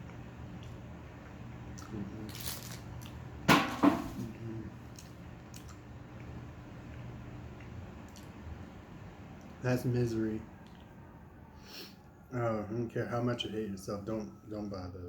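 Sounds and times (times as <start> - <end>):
steady low hum: 0.0 - 15.0
breathy hiss: 11.6 - 12.0.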